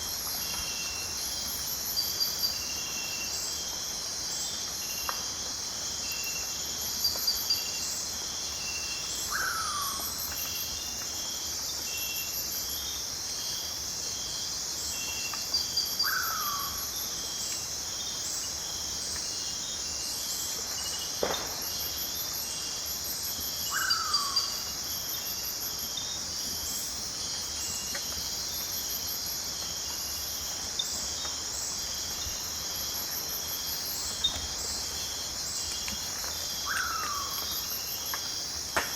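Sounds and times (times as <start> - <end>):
cricket-like chirps and trills: 0.0 - 38.9
insects buzzing: 0.0 - 38.9.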